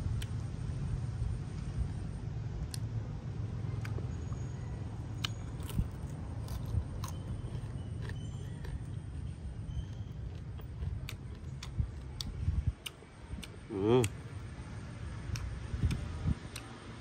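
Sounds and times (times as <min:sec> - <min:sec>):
crunching of fried food: 0:05.0 - 0:16.9.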